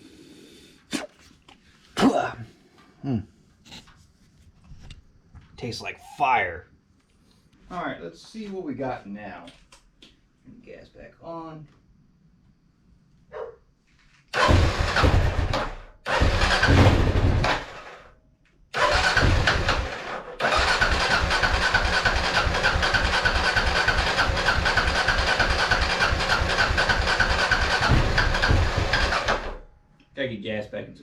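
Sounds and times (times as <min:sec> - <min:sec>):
engine electric starter cranking: 0:14.3 - 0:18.1, 0:18.7 - 0:29.7.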